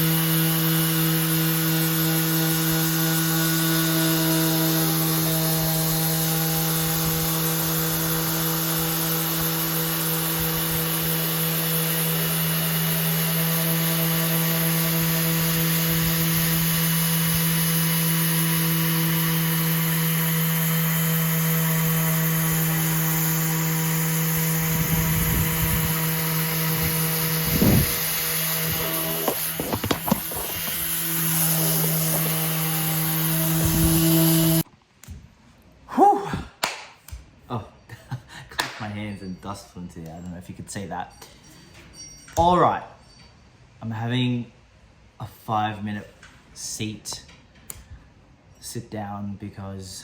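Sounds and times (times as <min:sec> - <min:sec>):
electric sander on wood: 0:00.0 - 0:34.6.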